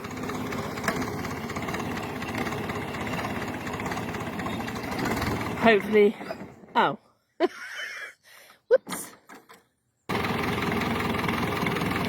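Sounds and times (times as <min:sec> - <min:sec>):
tractor engine running: 0:00.0 - 0:06.9, 0:10.1 - 0:12.0.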